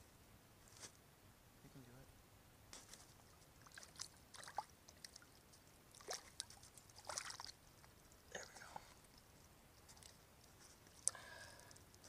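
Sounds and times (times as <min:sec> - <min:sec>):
water splashing and sloshing: 0:02.8 - 0:11.7.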